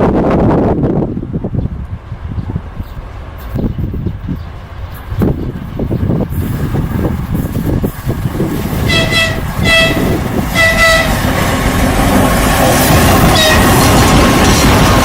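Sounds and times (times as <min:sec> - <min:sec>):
train rumbling on rails: 0:00.0 - 0:15.0
locomotive horn blasts: 0:08.8 - 0:11.3, 0:13.2 - 0:14.0.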